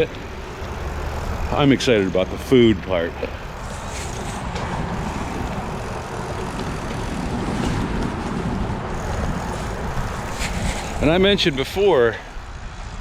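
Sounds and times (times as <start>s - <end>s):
wind rush on microphone: 3.4s - 13.0s.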